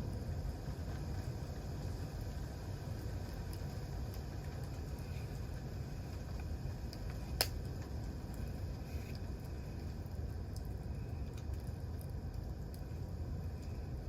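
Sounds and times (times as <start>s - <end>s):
campfire crackling and popping: 0.0s - 14.0s
steady low rumble: 0.0s - 14.0s
sharp fire pop: 7.4s - 7.6s.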